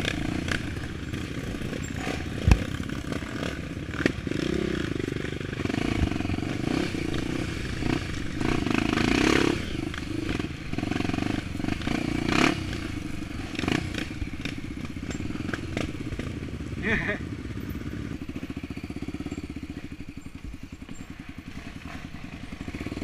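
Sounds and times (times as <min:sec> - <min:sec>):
motorcycle knocks and clatter: 0:00.0 - 0:07.3, 0:13.6 - 0:16.4
motorcycle engine revving: 0:00.0 - 0:23.0.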